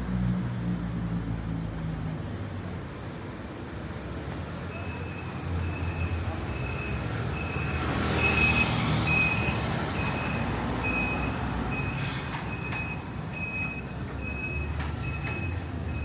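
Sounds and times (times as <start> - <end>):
reversing alarm beeping: 5.1 - 16.0.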